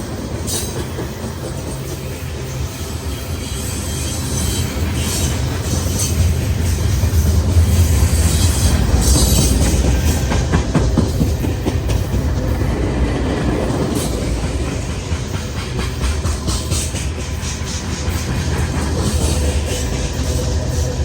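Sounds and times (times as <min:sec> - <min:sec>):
train rumbling past: 0:00.0 - 0:21.0.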